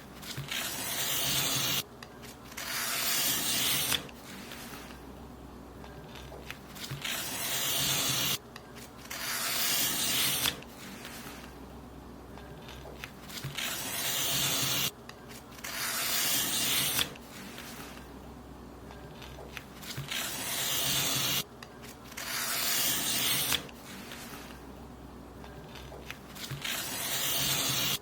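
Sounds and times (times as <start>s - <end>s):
paper being cut: 0.2s - 1.8s, 2.5s - 5.0s, 6.1s - 8.4s, 9.0s - 11.5s, 12.6s - 14.9s, 15.6s - 18.0s, 19.2s - 24.6s, 25.7s - 28.0s.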